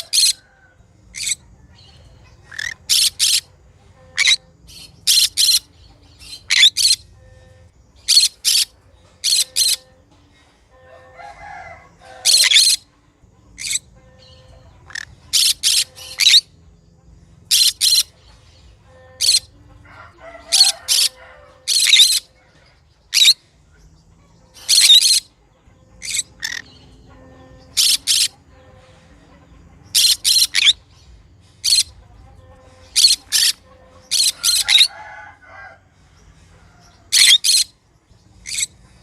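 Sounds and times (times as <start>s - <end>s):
parrot chattering: 1.1s - 1.4s, 2.3s - 3.5s, 4.2s - 7.1s, 8.1s - 9.8s, 12.1s - 12.8s, 13.6s - 14.0s, 14.8s - 16.5s, 17.5s - 18.2s, 19.2s - 19.5s, 20.4s - 22.3s, 23.1s - 23.4s, 24.6s - 25.3s, 26.0s - 28.4s, 29.9s - 30.9s, 31.6s - 35.0s, 37.1s - 37.7s, 38.4s - 38.8s
parrot screeching: 2.5s - 3.4s, 12.0s - 12.8s, 20.4s - 22.3s, 24.6s - 25.2s, 32.9s - 35.1s, 37.1s - 37.7s.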